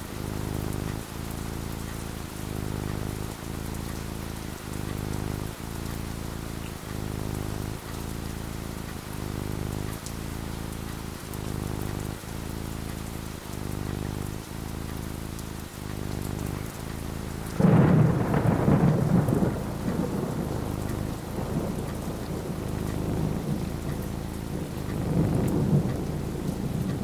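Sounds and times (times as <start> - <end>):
steady rain: 0.0 - 27.0
thunder clap rumbling: 17.4 - 27.0.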